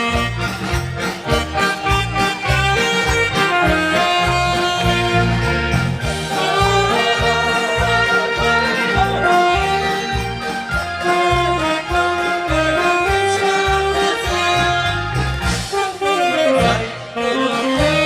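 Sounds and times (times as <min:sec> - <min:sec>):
pulsing bass: 0:00.0 - 0:15.8
saxophone melody: 0:00.0 - 0:18.0.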